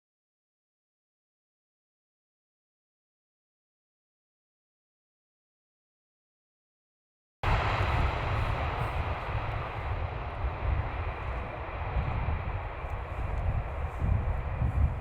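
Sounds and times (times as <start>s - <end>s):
heavy uneven low rumble: 7.4s - 15.0s
jet engines roaring: 7.4s - 15.0s.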